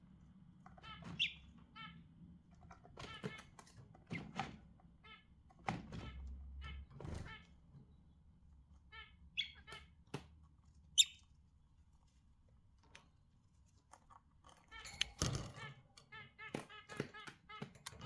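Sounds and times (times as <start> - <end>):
budgerigars chirping: 0.8 - 1.9, 8.9 - 9.9, 11.0 - 11.2.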